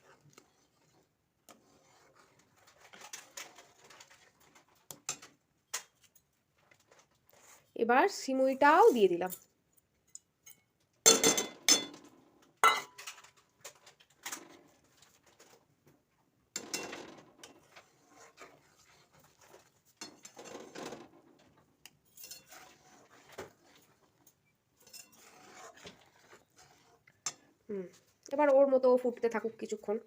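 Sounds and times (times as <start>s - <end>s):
spoon scraping cooking pot: 0.0s - 5.3s, 17.4s - 20.9s, 22.1s - 28.1s.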